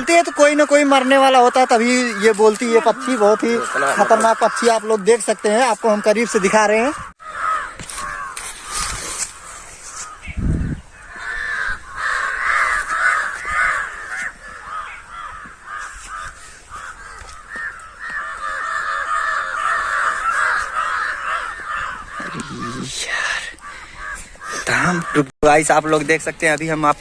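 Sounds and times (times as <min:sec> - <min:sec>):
crows cawing: 0:00.0 - 0:26.0.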